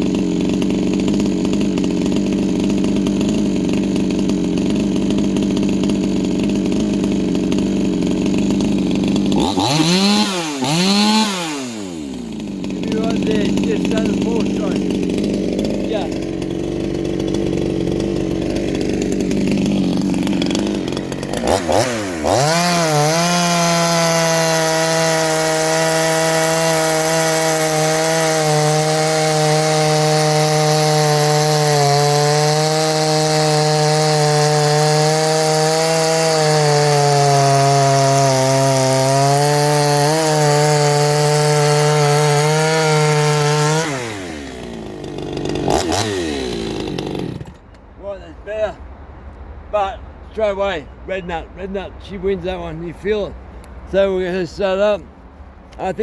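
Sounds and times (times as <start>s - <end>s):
chainsaw revving: 0.0s - 47.6s.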